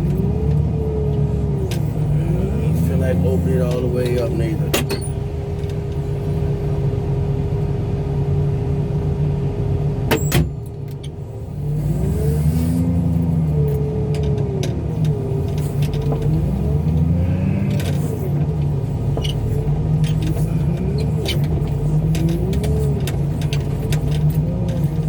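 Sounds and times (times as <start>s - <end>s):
heavy machinery engine revving: 0.0s - 4.9s, 11.5s - 25.0s.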